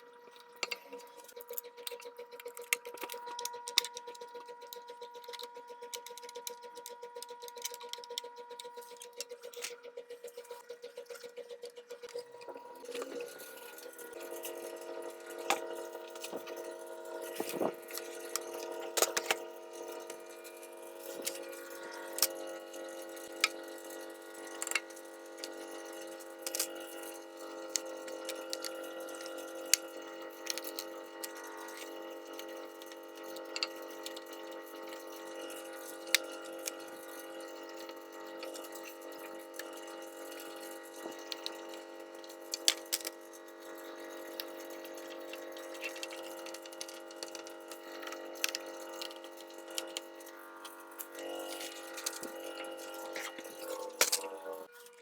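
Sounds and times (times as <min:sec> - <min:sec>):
hum of held tones: 0:11.9 - 0:55.0.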